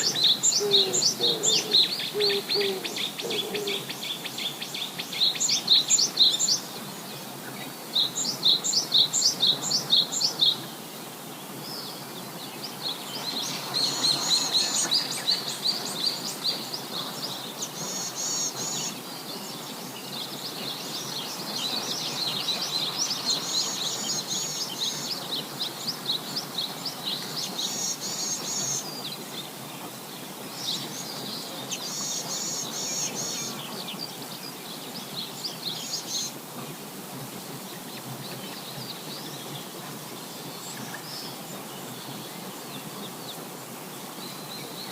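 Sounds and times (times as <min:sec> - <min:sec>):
birds chirping: 0:00.0 - 0:10.7, 0:11.4 - 0:36.4
steady background hiss: 0:00.0 - 0:44.9.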